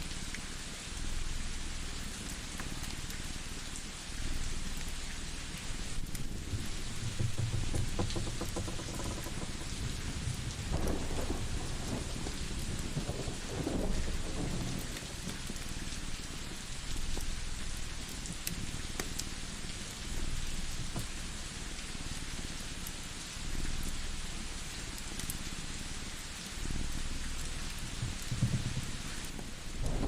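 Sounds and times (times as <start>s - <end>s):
steady rain: 0.0s - 30.0s
wood fire crackling: 0.2s - 30.0s
low rolls of thunder: 6.1s - 16.6s, 27.9s - 30.0s.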